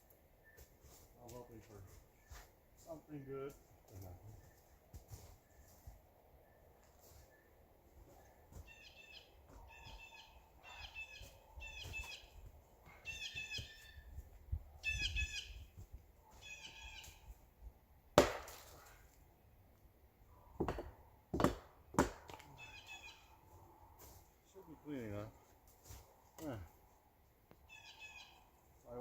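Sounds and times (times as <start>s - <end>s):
bird chirping: 8.6s - 14.2s, 14.8s - 15.7s, 16.4s - 17.3s, 22.5s - 23.4s, 27.6s - 28.5s
wood cracking: 18.2s - 19.0s.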